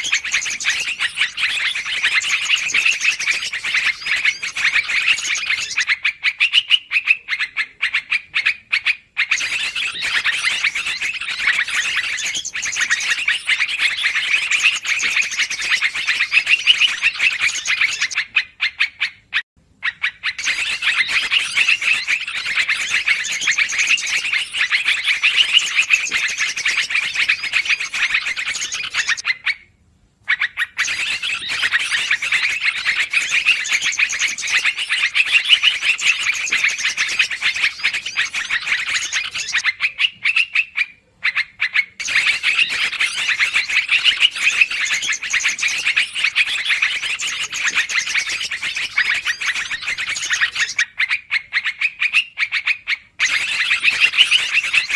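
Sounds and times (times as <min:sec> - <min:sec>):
bulbuls chattering: 0:00.0 - 0:08.6, 0:09.2 - 0:18.3, 0:20.4 - 0:29.2, 0:42.0 - 0:50.8.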